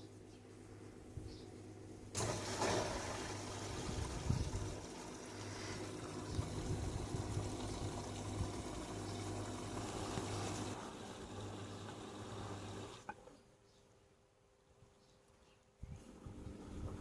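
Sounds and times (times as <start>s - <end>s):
washing machine water rushing in: 2.1s - 13.1s.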